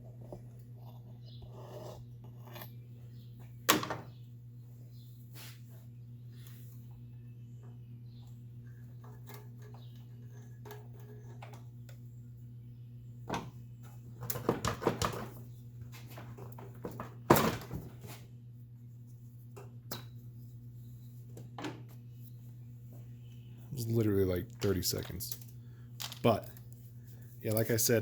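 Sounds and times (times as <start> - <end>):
steady low hum: 0.0 - 28.0
plastic parts clicking and rattling: 24.6 - 26.6.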